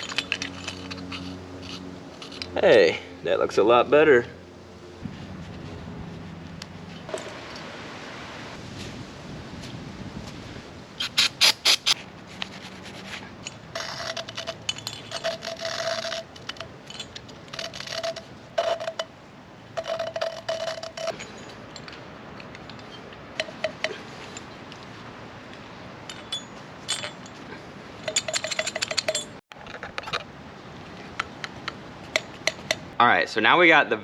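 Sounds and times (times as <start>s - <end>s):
gritty scraping of valve grinding: 0.0s - 2.6s, 11.0s - 12.0s, 13.1s - 19.1s, 19.8s - 21.6s.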